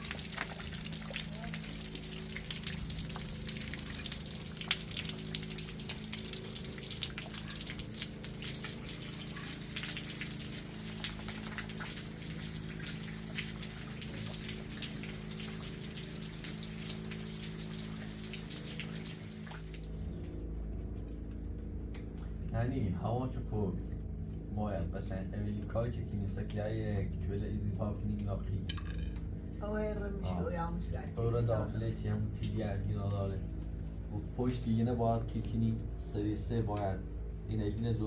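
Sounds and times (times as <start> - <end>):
raindrops ticking: 0.0 - 19.9
low hum: 0.0 - 38.0.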